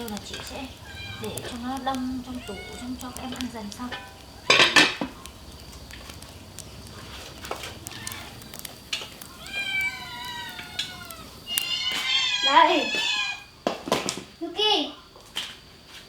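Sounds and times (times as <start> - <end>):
cat meowing: 0.4 - 3.2, 7.7 - 8.6, 9.2 - 13.5.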